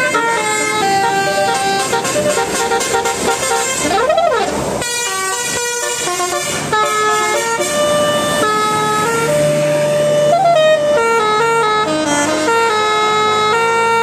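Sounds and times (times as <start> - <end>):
tune of held notes: 0.0 - 3.2.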